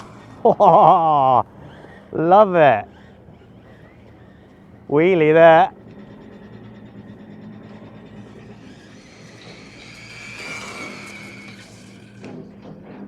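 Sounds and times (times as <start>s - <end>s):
rc car motor whine: 0.0s - 13.0s.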